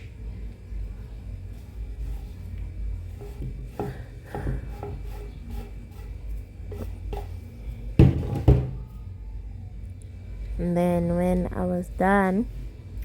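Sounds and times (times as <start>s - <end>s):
utensil scraping in a dish: 1.4s - 8.8s
loud knock: 8.0s - 8.9s.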